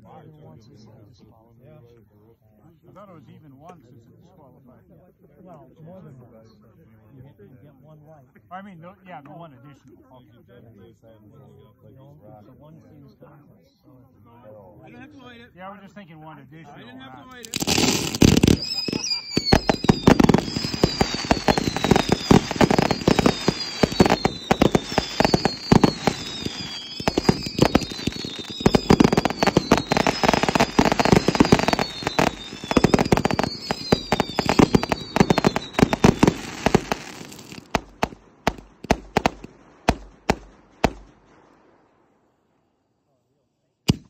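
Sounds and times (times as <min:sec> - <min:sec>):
fireworks shots and crackle: 0:17.4 - 0:41.9
falling firework whistles: 0:17.5 - 0:41.2.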